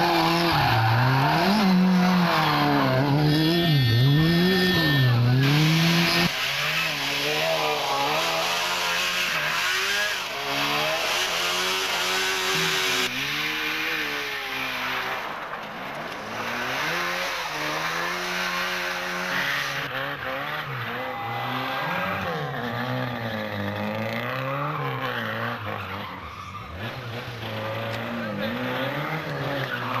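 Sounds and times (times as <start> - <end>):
rally car engines revving: 0.0 - 30.0
tyres skidding: 0.0 - 30.0.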